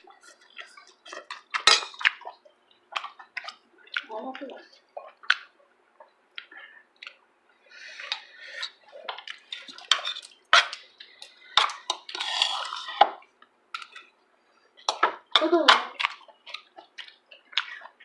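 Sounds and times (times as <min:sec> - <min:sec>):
chewing: 0:00.0 - 0:07.2, 0:07.8 - 0:14.2, 0:15.9 - 0:18.0
spoons and dishes clinking: 0:00.7 - 0:02.3, 0:09.5 - 0:13.1.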